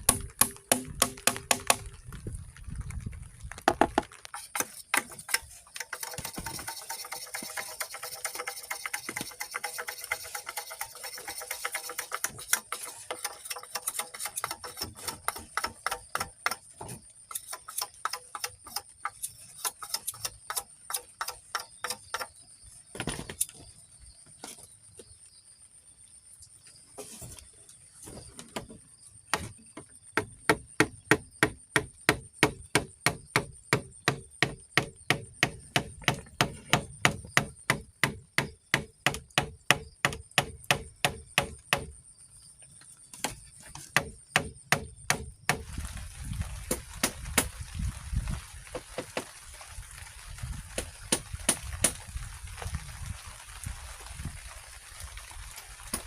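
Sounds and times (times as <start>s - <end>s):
sharp chopping strokes: 0.0s - 1.9s.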